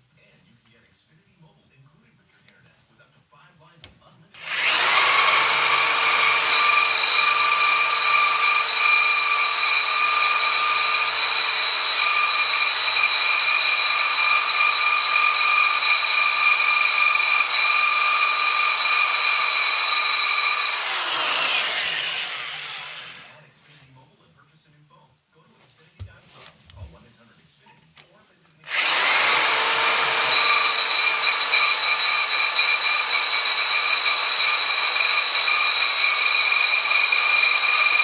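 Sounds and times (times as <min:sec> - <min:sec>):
electric power tool motor whining: 0:04.4 - 0:23.3, 0:28.7 - 0:38.0.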